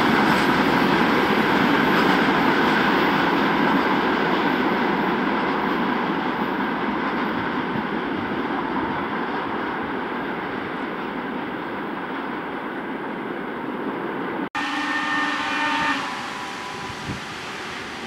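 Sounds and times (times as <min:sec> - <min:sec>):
train rolling along track: 0:00.0 - 0:18.0.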